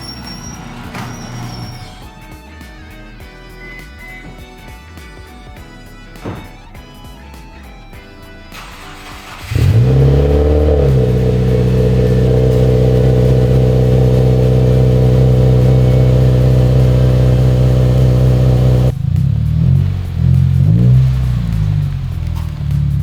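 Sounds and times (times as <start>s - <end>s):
car engine revving and idling: 8.6s - 23.0s.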